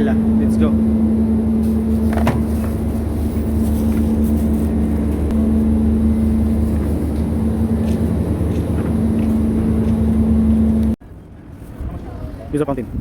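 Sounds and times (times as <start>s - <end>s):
low rumble: 0.7s - 11.0s.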